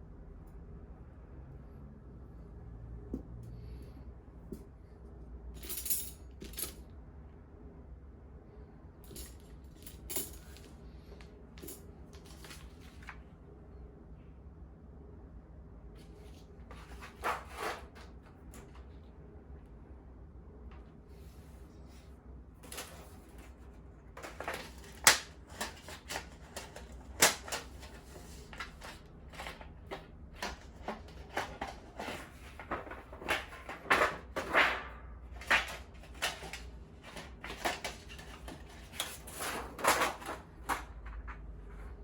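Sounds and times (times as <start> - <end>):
low steady hum: 0.0 - 42.0
rustling and scraping: 9.1 - 13.2, 16.0 - 19.0, 21.1 - 42.0.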